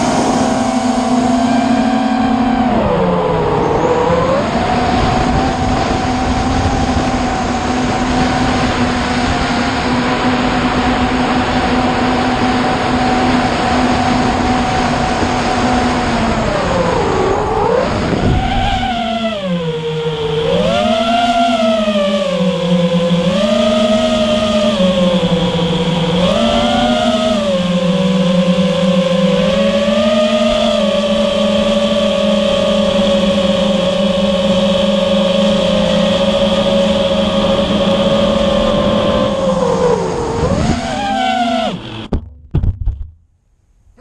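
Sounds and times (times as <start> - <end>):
rushing noise: 0.0 - 20.8
motor droning: 0.0 - 42.4.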